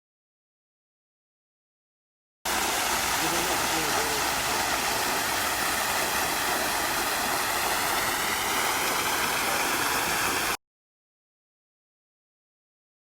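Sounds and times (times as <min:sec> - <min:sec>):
steady rushing hiss: 0:02.5 - 0:10.6.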